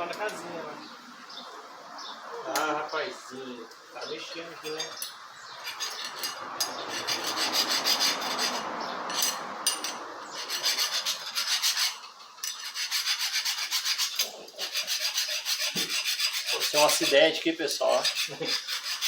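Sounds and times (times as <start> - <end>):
hand file rasping on steel: 5.7 - 19.0.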